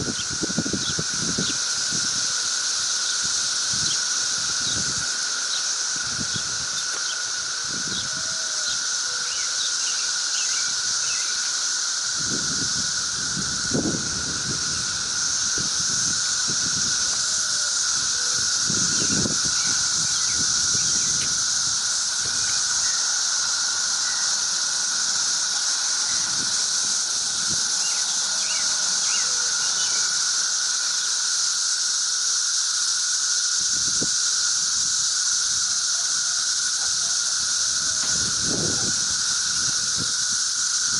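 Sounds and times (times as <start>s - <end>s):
cicadas chorus: 0.0s - 40.9s.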